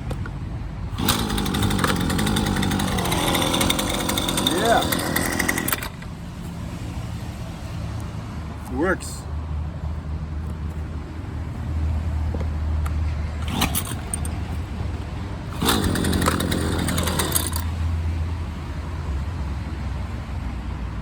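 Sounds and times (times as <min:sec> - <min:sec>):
engine clattering: 0:00.9 - 0:06.2, 0:13.4 - 0:17.8
string trimmer engine idling: 0:00.9 - 0:06.2, 0:13.4 - 0:17.8.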